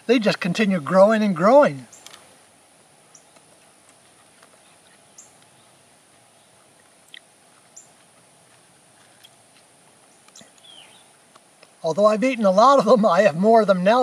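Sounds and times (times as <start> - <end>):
faint high-pitched hum: 0.0 - 14.0
faint bird chirps: 3.0 - 9.4, 10.0 - 11.2.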